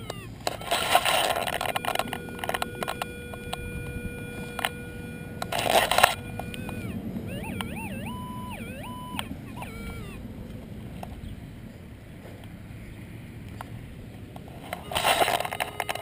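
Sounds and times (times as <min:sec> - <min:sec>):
metal detector tone: 0:00.0 - 0:10.2, 0:14.6 - 0:16.0
scraping in soil: 0:00.4 - 0:03.0, 0:14.6 - 0:16.0.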